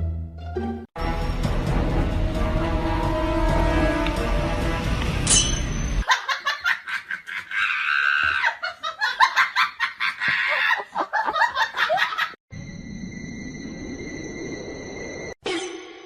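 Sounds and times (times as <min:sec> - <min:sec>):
high-pitched laughter: 0:06.0 - 0:12.4.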